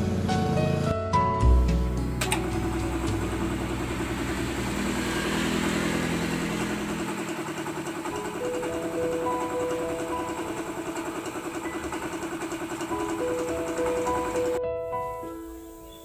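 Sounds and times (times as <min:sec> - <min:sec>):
airbrush compressor pulsing hum: 0:00.0 - 0:00.8, 0:02.2 - 0:14.6.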